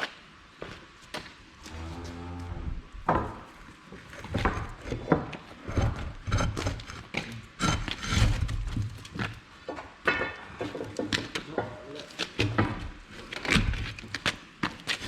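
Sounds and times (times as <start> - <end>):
tools and heavy parts clunking: 4.2 - 13.8.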